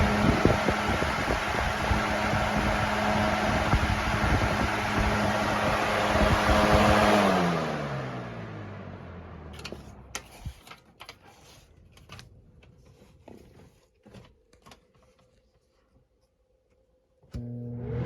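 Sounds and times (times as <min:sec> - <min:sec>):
box fan spinning down: 0:00.0 - 0:10.6, 0:17.4 - 0:18.0.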